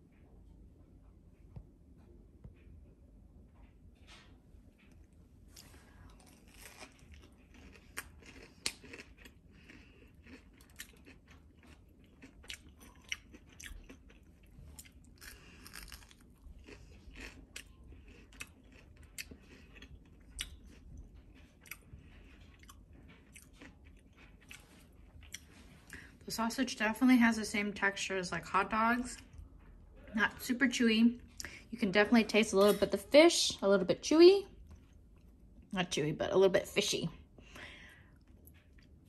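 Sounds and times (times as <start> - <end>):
person chewing crispy food: 5.0 - 26.1.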